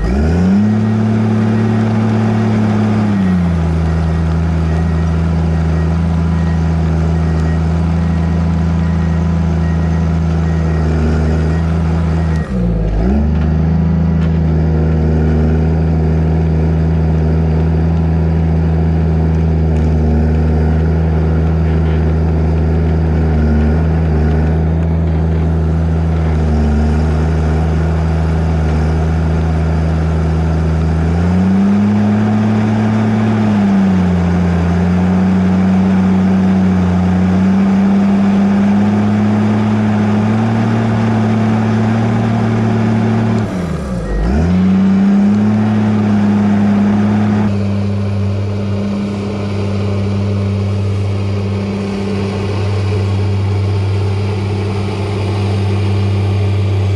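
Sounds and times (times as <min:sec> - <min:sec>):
diesel engine under load: 0:00.0 - 0:56.9.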